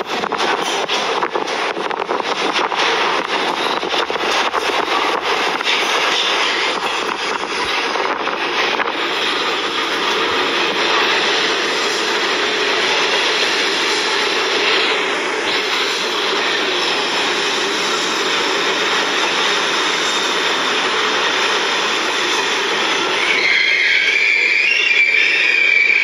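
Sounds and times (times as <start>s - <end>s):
train rushing noise: 0.0s - 26.0s
high metallic wheel squeal: 22.4s - 26.0s.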